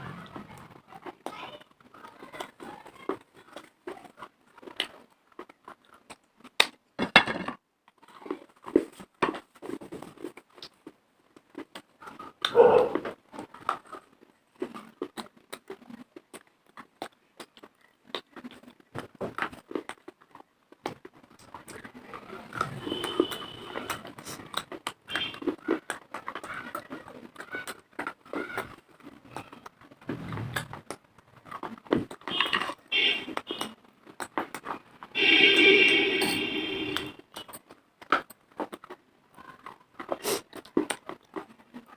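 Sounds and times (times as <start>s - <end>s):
chewing and crunching clay: 0.0s - 6.8s, 7.8s - 35.2s, 37.3s - 41.9s
mouth sounds: 35.2s - 37.5s.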